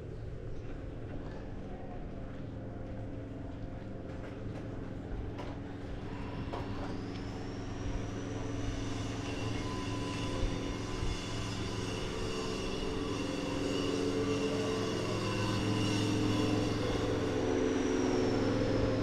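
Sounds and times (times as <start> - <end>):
engine running: 14.2 - 19.0.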